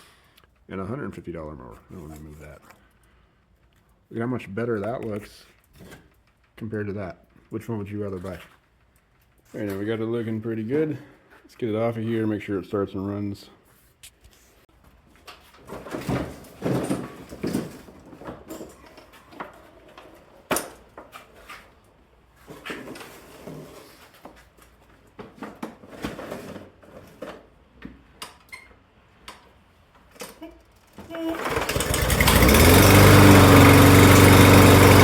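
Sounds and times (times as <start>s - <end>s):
push mower clunking and rattling: 15.4s - 21.2s, 30.2s - 35.0s.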